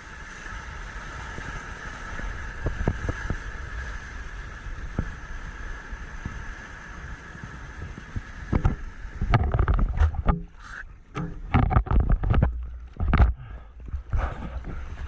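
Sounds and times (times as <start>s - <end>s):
surf rushing: 0.0s - 15.0s
water splashing against camera: 7.8s - 15.0s.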